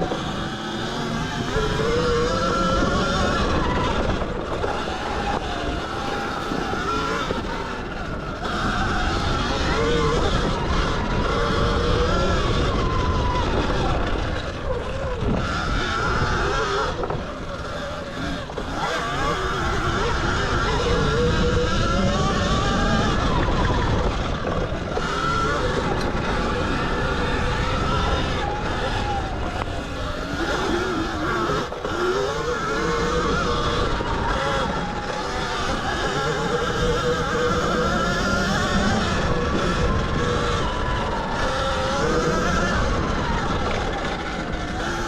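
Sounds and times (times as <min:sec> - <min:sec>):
electric motorbike motor whining: 0:00.0 - 0:45.0
wind and tyres in sand: 0:00.0 - 0:45.0
rushing rumble: 0:22.5 - 0:45.0.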